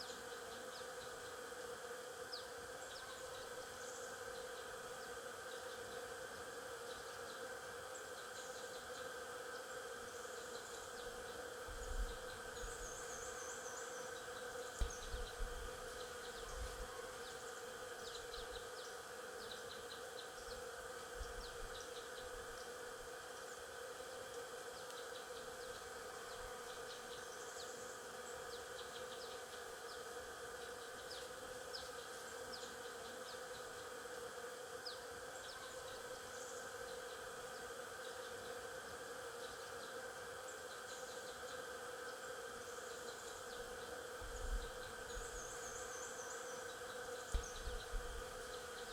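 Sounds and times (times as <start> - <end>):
bees buzzing: 8.6 - 24.7, 41.2 - 48.9.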